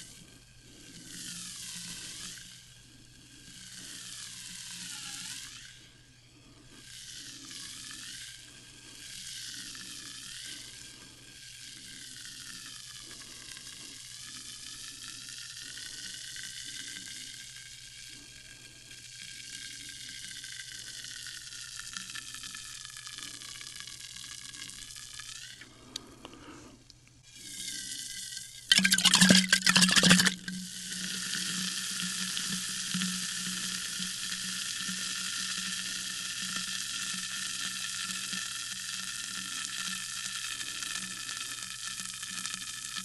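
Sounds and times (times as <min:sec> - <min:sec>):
sparkling water fizzing: 0:28.7 - 0:30.5.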